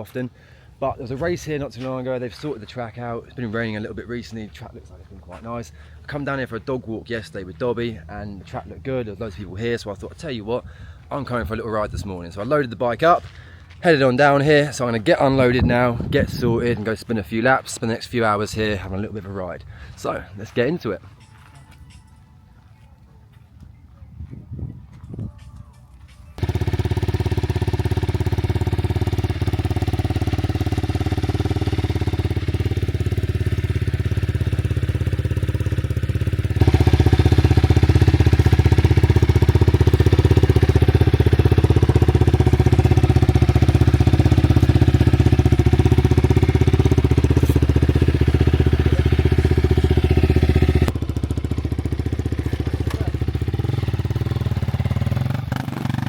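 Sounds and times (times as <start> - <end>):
motorcycle engine idling: 0.1 - 11.1, 26.3 - 56.0.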